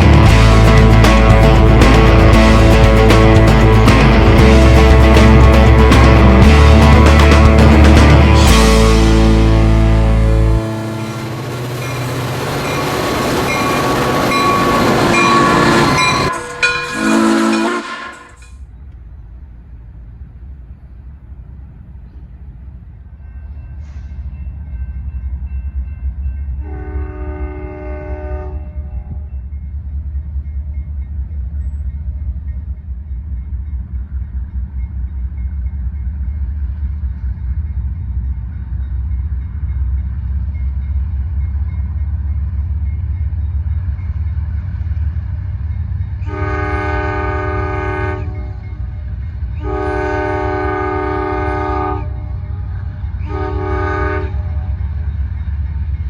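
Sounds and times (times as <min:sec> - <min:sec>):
diesel locomotive rumble: 0:00.0 - 0:56.0
train air horn blasts: 0:09.7 - 0:11.6, 0:13.5 - 0:18.6, 0:26.6 - 0:29.3, 0:46.2 - 0:48.8, 0:49.5 - 0:54.8.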